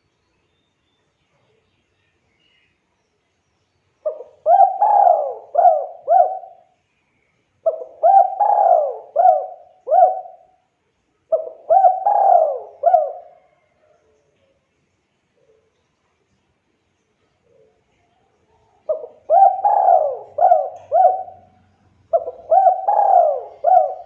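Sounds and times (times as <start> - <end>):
dove cooing: 4.0 - 6.7, 7.6 - 10.6, 11.3 - 13.7, 18.8 - 24.0.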